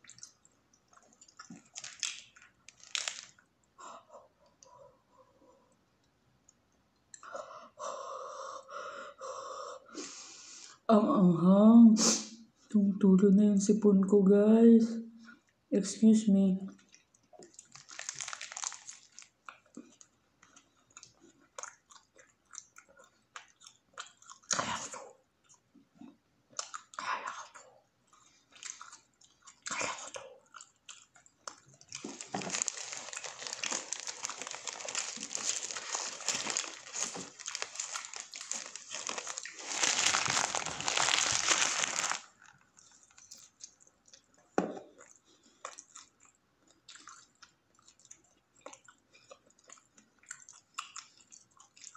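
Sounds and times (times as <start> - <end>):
crunchy biting and chewing: 1.0 - 3.5, 17.4 - 24.6, 30.6 - 44.2
paper wrapper crinkling: 1.6 - 3.4, 17.6 - 19.3, 31.9 - 43.5.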